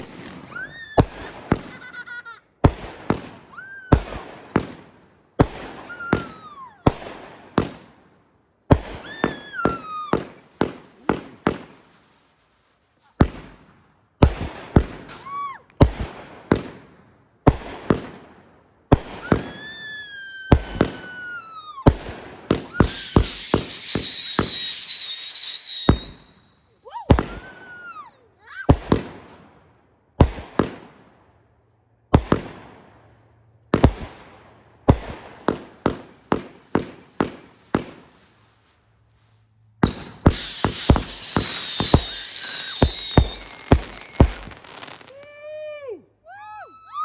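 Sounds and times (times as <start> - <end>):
firework whistles: 0.0 - 2.1, 5.9 - 6.8, 8.9 - 10.4, 19.0 - 28.1, 39.8 - 45.3
firework bangs and crackles: 0.0 - 28.0, 28.6 - 31.2, 32.1 - 39.0, 39.8 - 45.3.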